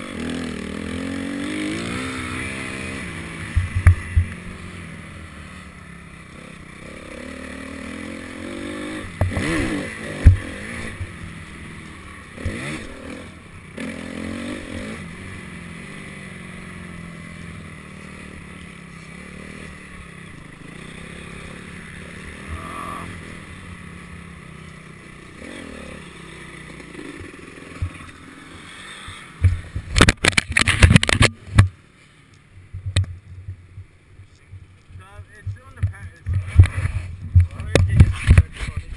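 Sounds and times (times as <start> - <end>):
motorcycle engine revving: 0.0 - 31.5.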